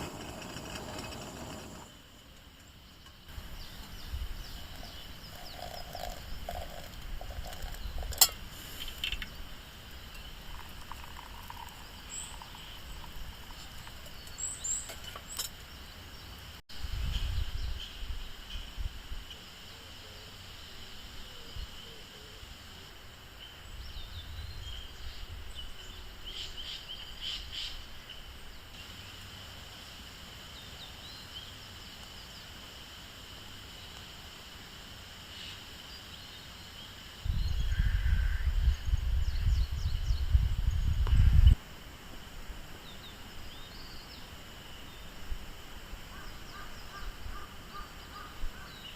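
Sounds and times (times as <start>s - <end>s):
low rumbles: 0.0s - 2.0s.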